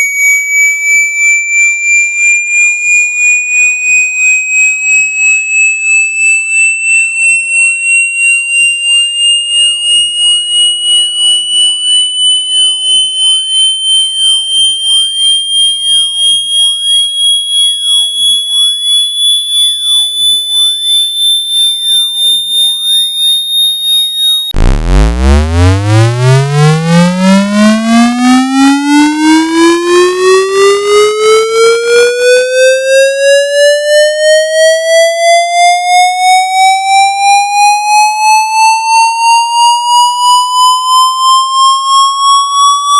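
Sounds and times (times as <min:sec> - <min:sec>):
pulsing electronic tone: 0:09.5 - 0:34.6.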